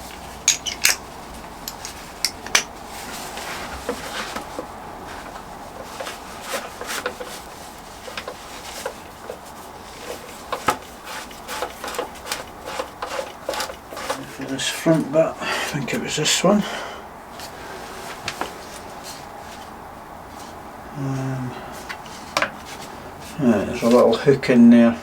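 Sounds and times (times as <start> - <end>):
metal hand tools clinking: 0.0 - 2.7.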